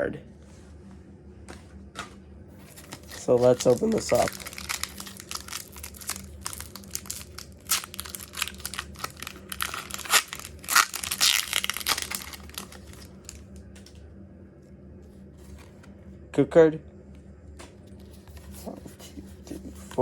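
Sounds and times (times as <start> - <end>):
foil wrapper tearing and crinkling: 2.6 - 13.4.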